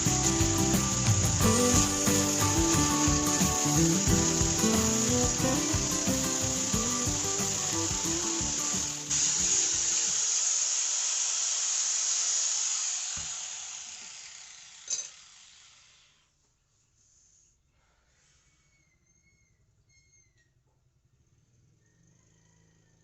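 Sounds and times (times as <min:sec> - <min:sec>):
hot blade sizzling in quench: 0:00.0 - 0:16.0.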